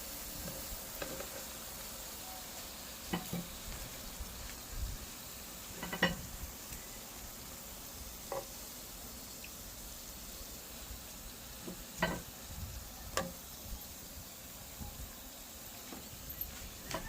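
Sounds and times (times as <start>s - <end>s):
oil sizzling in a frying pan: 0.0s - 17.0s.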